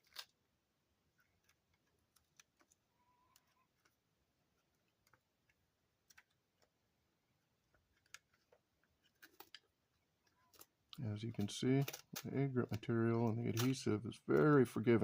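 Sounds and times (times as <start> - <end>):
small clicks and crackles of grip tape: 1.2 - 6.8.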